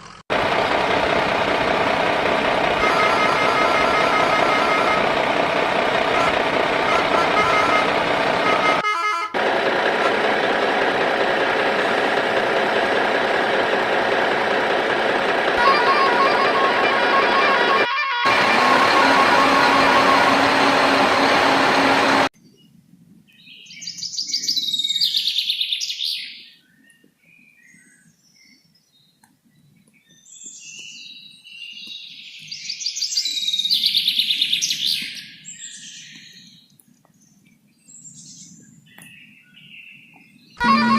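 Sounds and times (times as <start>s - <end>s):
engine running steadily: 0.0s - 22.3s, 40.6s - 40.9s.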